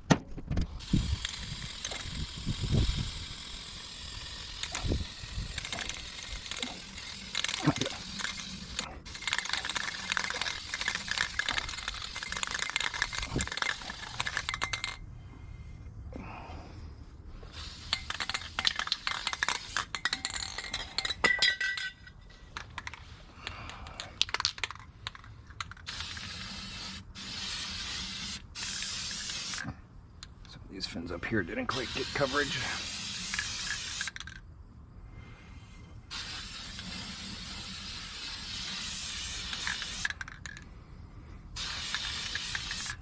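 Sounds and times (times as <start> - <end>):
spray paint can hissing: 0.8 - 15.0, 17.5 - 21.1, 24.2 - 29.7, 31.7 - 34.4, 36.1 - 40.6, 41.6 - 43.0
spray can clicks: 41.6 - 43.0.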